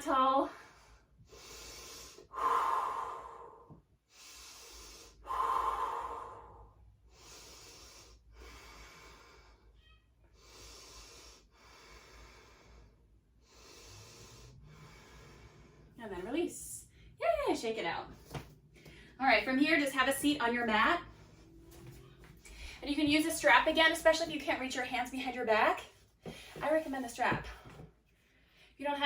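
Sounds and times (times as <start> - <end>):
woman breathing deeply: 0.6 - 9.8, 10.4 - 16.0, 21.1 - 21.8.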